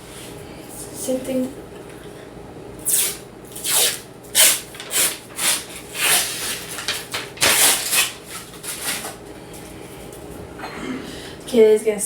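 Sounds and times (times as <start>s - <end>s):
paper rustling and tearing: 2.9s - 9.2s.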